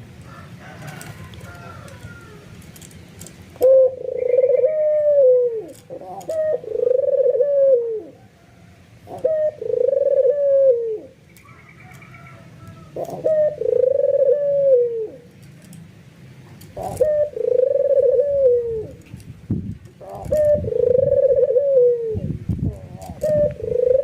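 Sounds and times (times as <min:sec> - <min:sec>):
dove cooing: 0:03.6 - 0:15.3, 0:16.6 - 0:19.1, 0:20.0 - 0:24.0.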